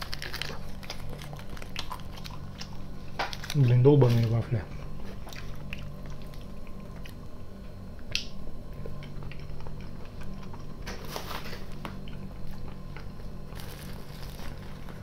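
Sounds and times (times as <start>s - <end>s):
person chewing: 0.0s - 3.6s, 4.7s - 15.0s
steady low hum: 0.0s - 15.0s.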